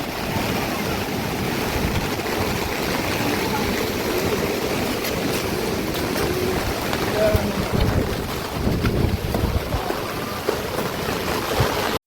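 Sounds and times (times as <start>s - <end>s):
steady rushing noise: 0.0s - 12.0s
wind buffeting microphone: 0.0s - 12.0s.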